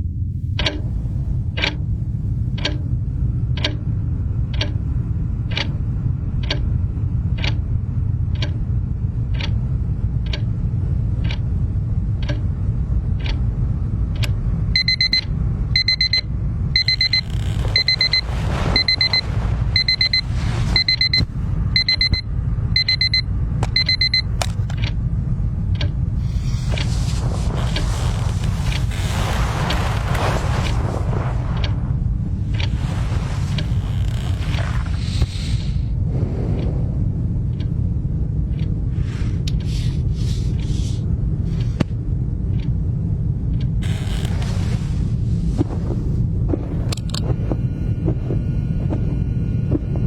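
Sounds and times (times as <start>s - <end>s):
low rumble: 0.0s - 50.0s
clock ticking: 0.6s - 9.6s, 12.2s - 12.5s, 14.2s - 19.2s, 19.8s - 22.2s, 22.8s - 25.0s
alarm clock beeping: 14.8s - 24.6s.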